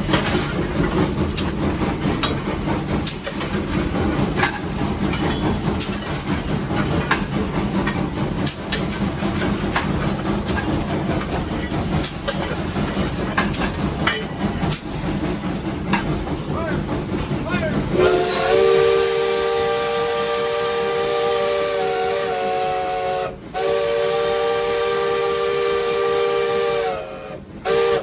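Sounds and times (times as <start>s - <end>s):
wheels clicking over rail joints: 0.0s - 17.9s
steam locomotive engine rumble: 0.0s - 28.0s.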